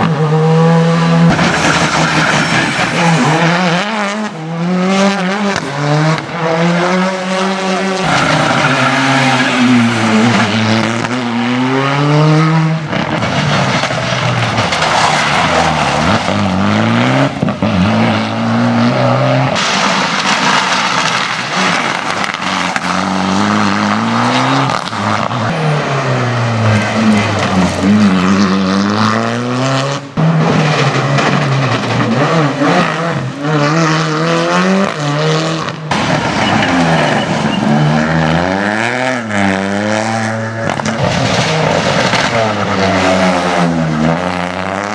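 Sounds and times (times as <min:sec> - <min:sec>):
rally car engines revving: 0:00.0 - 0:44.9.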